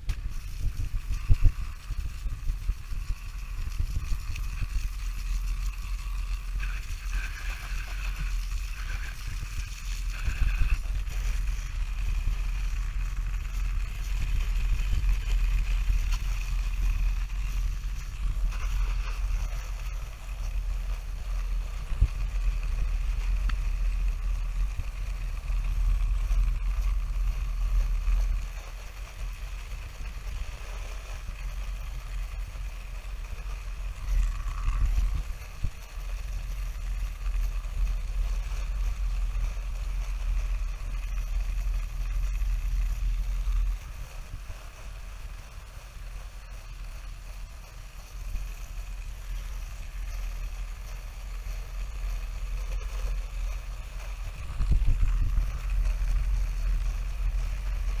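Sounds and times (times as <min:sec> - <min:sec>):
water spraying: 0:00.1 - 0:20.5.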